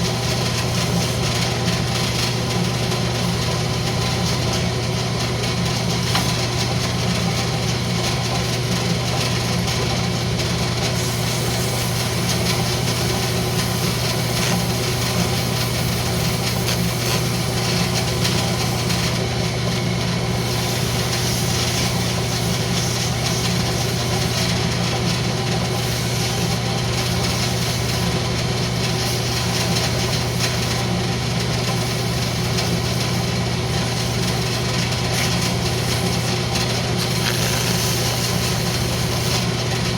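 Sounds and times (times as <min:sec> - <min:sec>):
wood lathe motor hum: 0:00.0 - 0:39.9
sandpaper rubbing spinning wood: 0:10.6 - 0:19.6, 0:20.2 - 0:30.9, 0:31.6 - 0:39.9.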